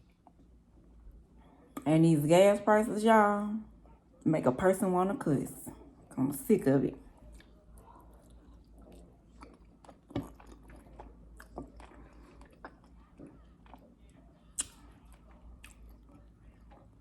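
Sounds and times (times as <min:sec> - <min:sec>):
person chewing food: 0:07.0 - 0:17.0
mouth clicks and smacks: 0:14.6 - 0:16.1.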